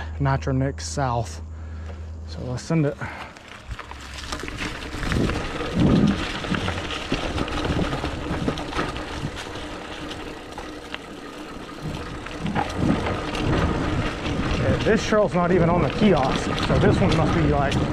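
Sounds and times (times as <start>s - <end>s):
bike tyres rolling on dirt: 1.6s - 17.9s
bike rattling and knocking: 3.0s - 17.9s
wind buffeting microphone: 4.8s - 10.4s, 11.7s - 17.9s.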